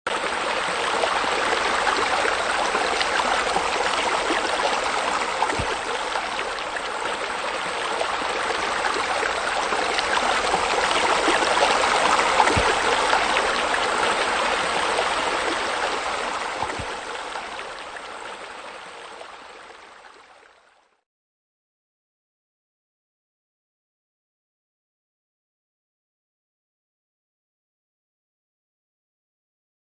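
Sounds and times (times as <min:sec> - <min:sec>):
waterfall splashing into pool: 0:00.1 - 0:17.8.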